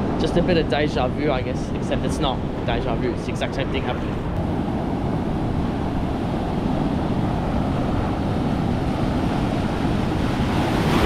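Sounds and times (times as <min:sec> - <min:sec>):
wind buffeting microphone: 0:00.0 - 0:11.0
ocean waves breaking: 0:04.0 - 0:11.0.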